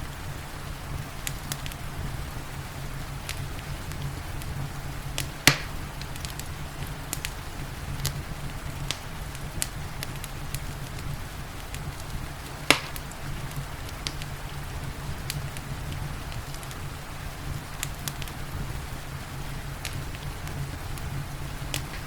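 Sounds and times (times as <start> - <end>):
rain hissing: 0.0 - 22.0
steady low rumble: 0.0 - 22.0
wood fire crackling: 0.0 - 22.0.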